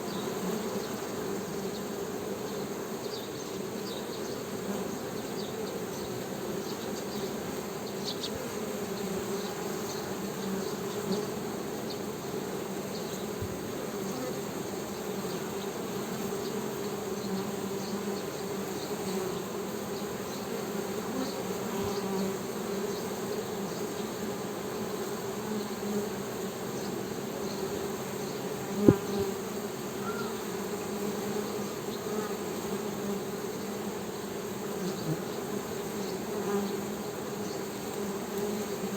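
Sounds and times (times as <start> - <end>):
bees buzzing: 4.4 - 38.9.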